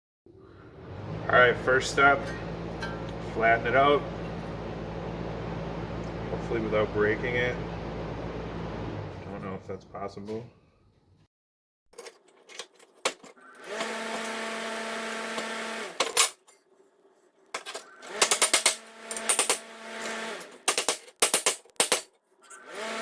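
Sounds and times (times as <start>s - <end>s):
steady machine hum: 0.4s - 9.6s.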